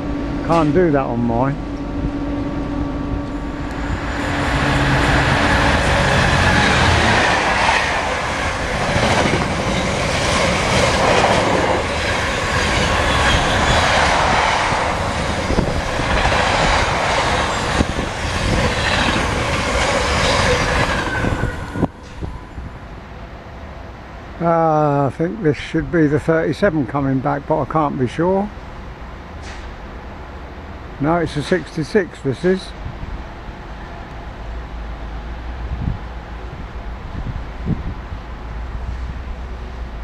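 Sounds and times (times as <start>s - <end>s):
train wheels rumbling on rails: 0.0s - 23.1s.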